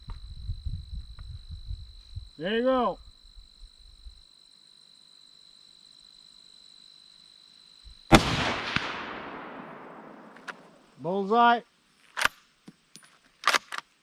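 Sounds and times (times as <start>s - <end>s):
rifle shot: 8.1s - 10.8s.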